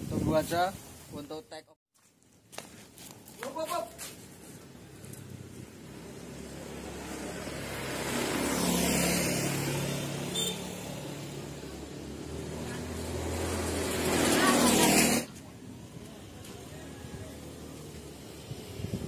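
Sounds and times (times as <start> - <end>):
vehicle passing by: 4.4 - 19.0.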